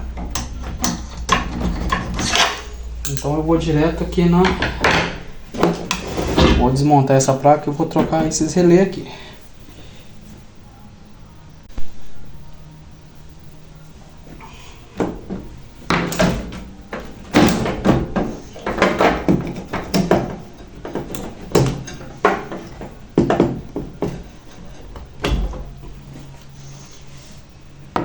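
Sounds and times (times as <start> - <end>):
microwave casing knocks and rattles: 0.0 - 2.8, 4.3 - 6.9, 15.0 - 26.4.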